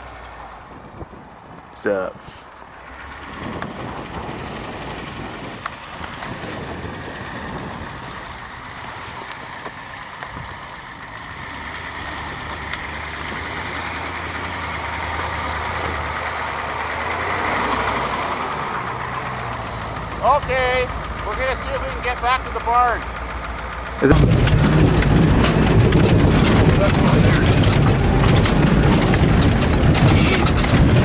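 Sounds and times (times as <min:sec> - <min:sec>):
truck engine running: 0:00.0 - 0:31.0
tyre and body noise: 0:24.1 - 0:31.0.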